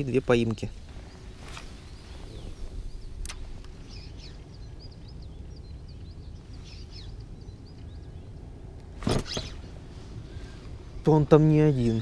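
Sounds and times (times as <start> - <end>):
low ambient rumble: 0.0 - 12.0
small birds chirping: 0.0 - 12.0
sharp clicks: 3.2 - 3.8.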